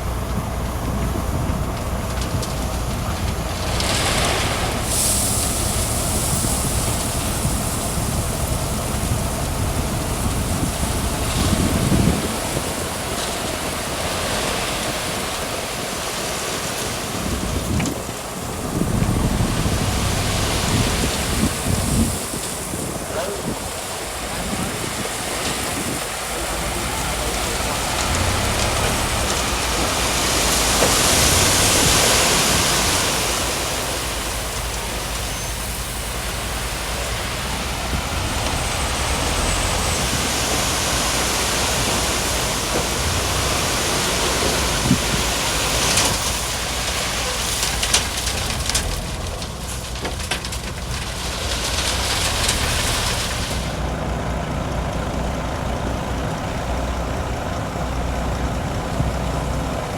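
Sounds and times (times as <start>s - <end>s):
diesel engine running: 0.0s - 59.9s
broad hiss: 3.6s - 17.0s.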